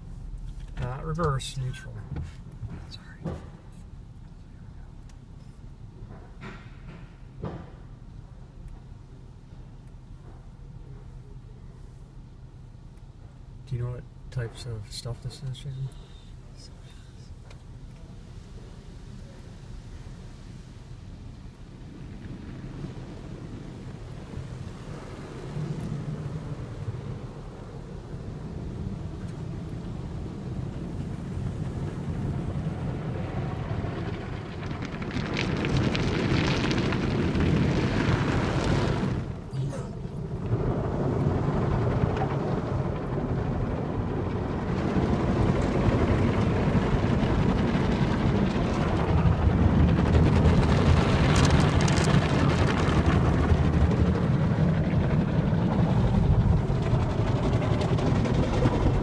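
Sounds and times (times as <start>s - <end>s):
car wash machinery rumbling: 0.0s - 59.0s
water spraying on car: 13.7s - 59.0s.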